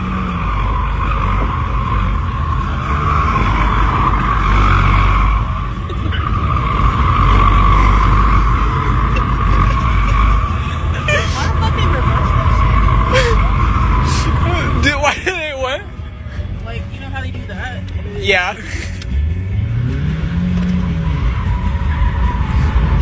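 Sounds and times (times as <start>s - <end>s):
vehicle engine rumble: 0.0s - 23.0s.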